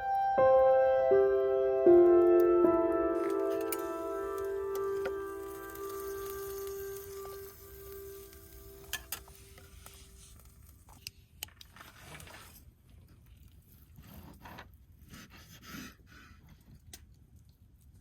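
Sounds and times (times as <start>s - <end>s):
small objects being handled: 2.4s - 13.6s.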